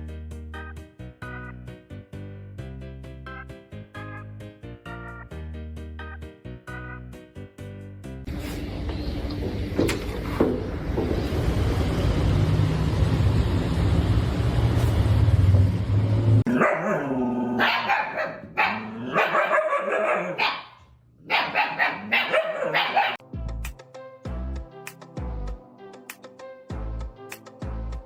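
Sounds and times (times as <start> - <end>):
dog barking and yowling: 16.5 - 23.2
music with steady beat: 23.2 - 28.0.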